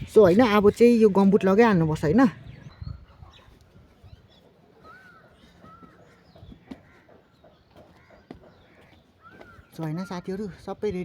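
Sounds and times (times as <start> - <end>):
bird calling: 2.5 - 10.6.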